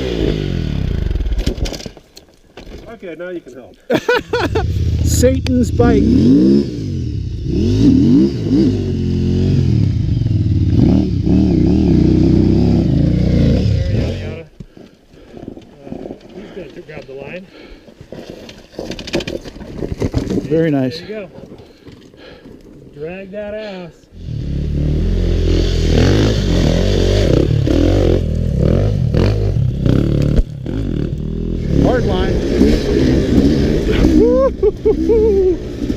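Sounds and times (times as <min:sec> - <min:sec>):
dirt bike engine revving: 0:00.0 - 0:01.4, 0:04.2 - 0:14.5, 0:24.1 - 0:35.9.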